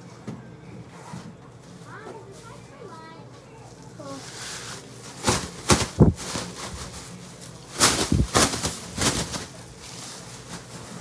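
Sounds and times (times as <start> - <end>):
food packages rustling and clattering: 3.7 - 11.0.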